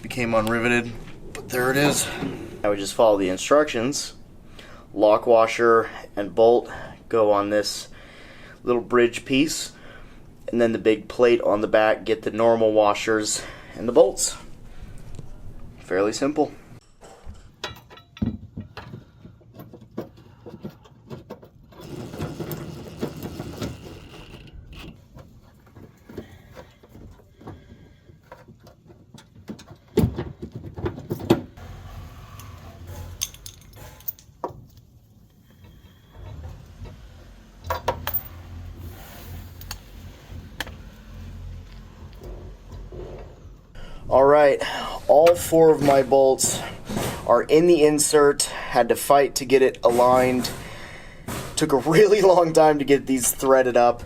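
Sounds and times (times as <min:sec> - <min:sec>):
metal bolts and tools clinking: 0:16.8 - 0:25.4, 0:32.4 - 0:34.9, 0:37.6 - 0:38.6.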